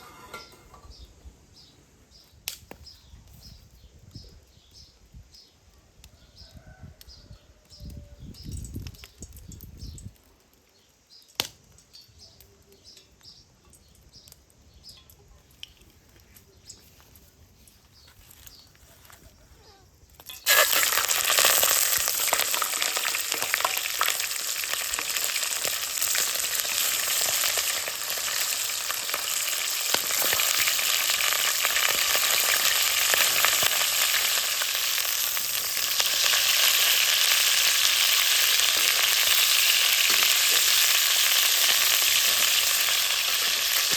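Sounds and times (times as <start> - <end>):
food sizzling in hot oil: 20.3 - 43.9.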